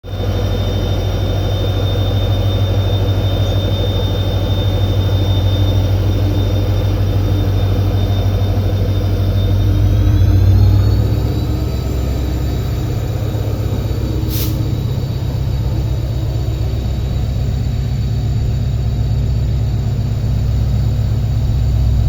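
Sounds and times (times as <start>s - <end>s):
diesel locomotive humming: 0.0s - 22.0s
high whine: 0.1s - 22.0s.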